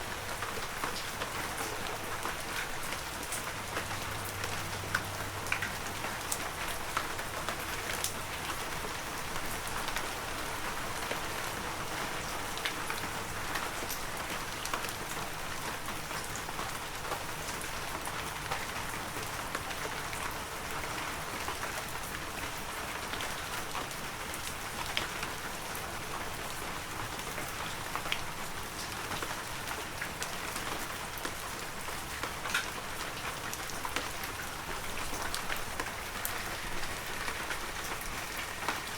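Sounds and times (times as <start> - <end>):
heavy rain falling: 0.0 - 38.9
raindrops tapping close by: 26.2 - 38.9.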